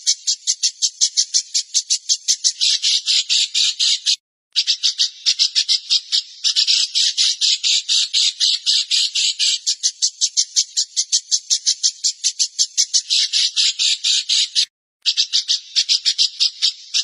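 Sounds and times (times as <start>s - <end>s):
songbird harsh scratchy calls: 0.0s - 17.0s.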